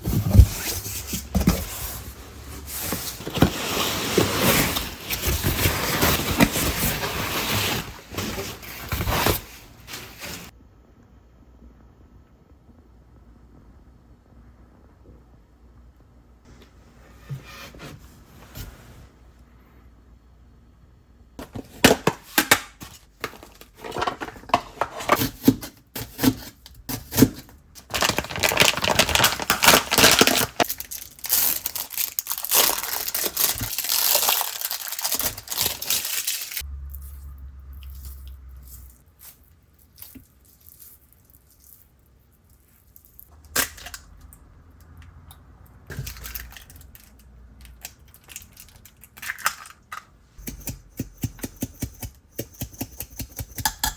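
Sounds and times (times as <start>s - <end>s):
plastic packaging crinkling: 27.8s - 36.6s, 45.9s - 49.7s.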